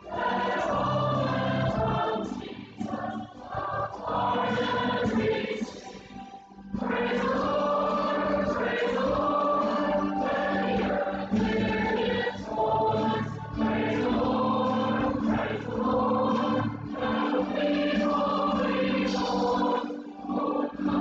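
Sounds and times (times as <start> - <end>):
choir singing a hymn: 0.0 - 21.0.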